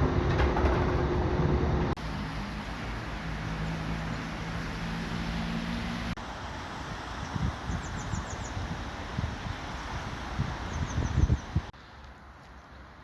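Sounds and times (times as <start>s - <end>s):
train rumble: 0.0s - 7.1s
low engine hum: 0.0s - 11.7s.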